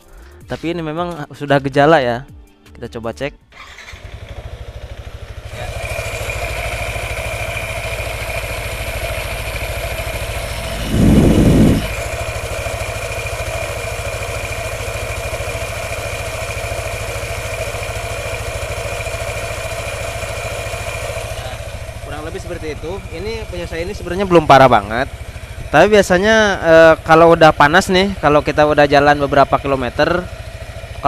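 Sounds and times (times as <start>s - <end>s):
scooter idling: 3.6s - 31.0s
low rumble: 10.2s - 12.0s.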